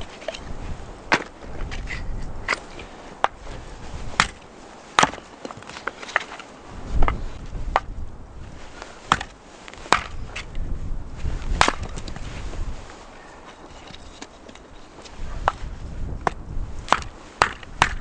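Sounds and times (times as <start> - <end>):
axe chopping wood: 1.1 - 1.4, 4.2 - 6.3, 7.1 - 7.9, 9.1 - 10.5, 11.6 - 12.0, 16.2 - 18.0.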